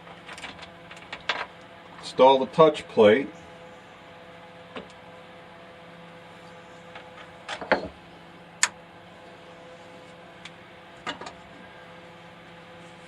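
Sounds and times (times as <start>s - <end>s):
clicks and knocks of handled parts: 0.0s - 1.7s
faint steady hum: 0.0s - 13.0s.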